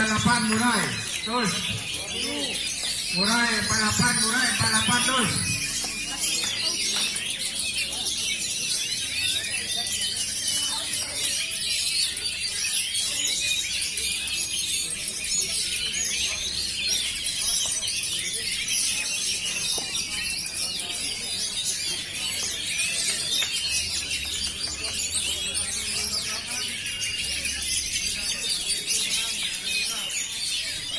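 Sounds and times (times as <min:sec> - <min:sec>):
songbirds chirping and warbling: 0:00.0 - 0:30.9.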